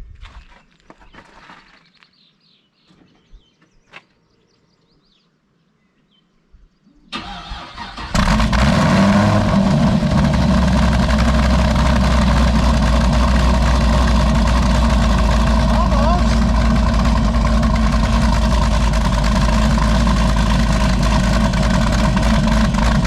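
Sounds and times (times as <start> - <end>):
car engine starting and idling: 7.1 - 23.0.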